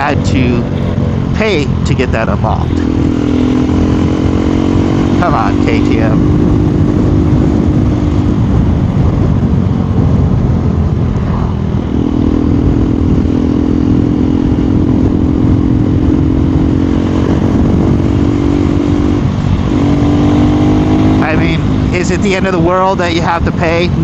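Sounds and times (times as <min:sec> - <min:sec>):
motorcycle engine running: 0:00.0 - 0:24.0
wind rushing over microphone: 0:00.0 - 0:24.0.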